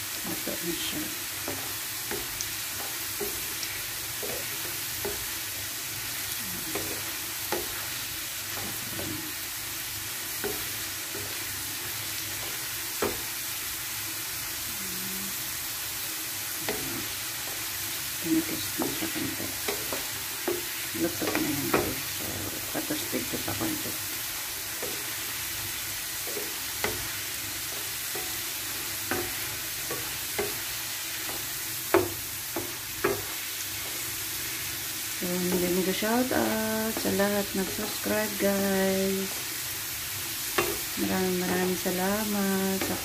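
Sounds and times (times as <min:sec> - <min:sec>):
fries sizzling in hot oil: 0:00.0 - 0:43.0
wooden spatula knocking on pan: 0:29.1 - 0:33.3.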